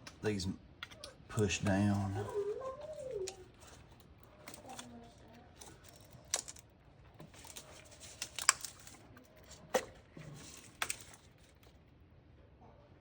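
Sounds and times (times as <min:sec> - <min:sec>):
wiring harness rustling: 0:01.3 - 0:11.9.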